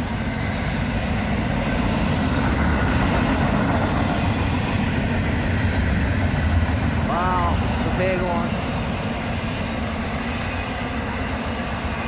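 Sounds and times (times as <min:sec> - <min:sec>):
freight train passing: 0:00.0 - 0:12.0.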